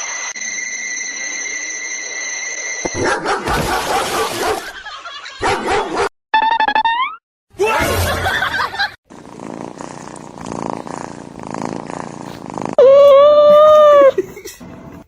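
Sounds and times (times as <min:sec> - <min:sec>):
cat purring: 0:09.1 - 0:12.8
high-pitched animal cry: 0:12.8 - 0:14.2.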